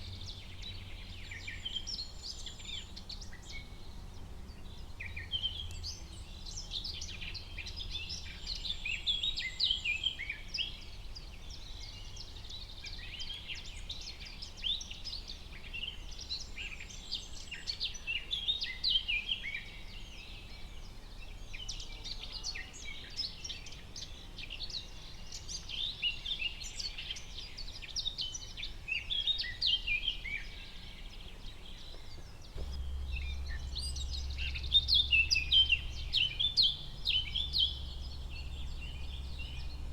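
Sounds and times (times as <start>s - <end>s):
birds chirping and singing: 21.3s - 39.9s
low steady rumble: 32.2s - 39.9s.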